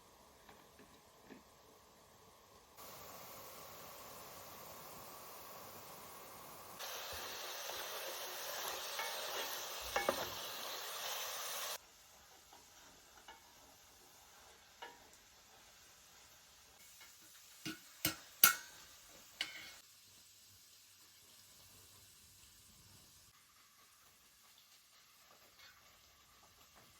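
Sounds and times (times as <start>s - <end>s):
food sizzling in a frying pan: 0.0s - 26.9s
utensils knocking on cookware: 8.8s - 10.4s, 17.6s - 19.8s.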